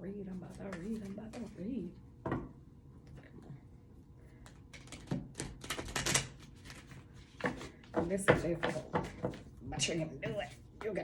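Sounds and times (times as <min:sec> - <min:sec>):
cards being shuffled: 0:00.7 - 0:01.6, 0:04.4 - 0:07.9.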